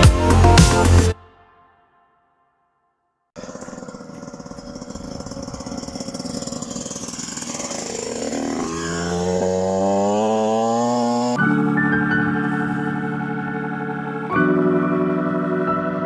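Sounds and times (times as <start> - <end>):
motorcycle engine revving: 3.4 - 13.8.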